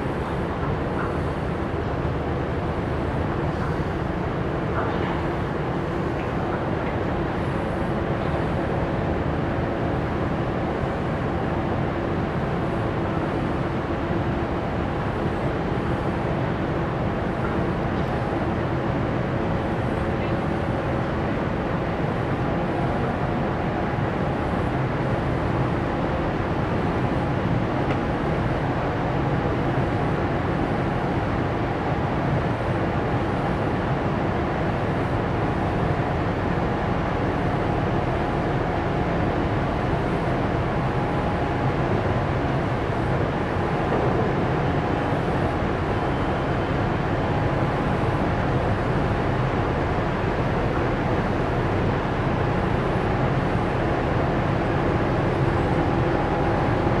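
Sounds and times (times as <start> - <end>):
ship diesel engine humming: 34.3 - 57.0.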